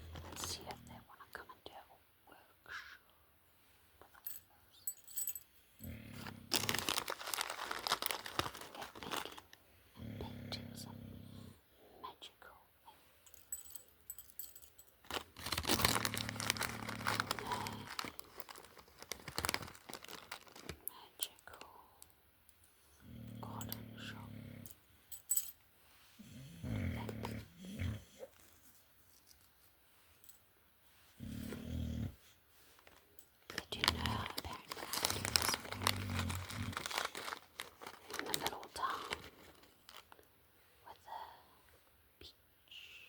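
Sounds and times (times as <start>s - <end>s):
packaging crinkling and tearing: 6.2s - 9.6s, 15.0s - 20.9s, 32.8s - 40.3s.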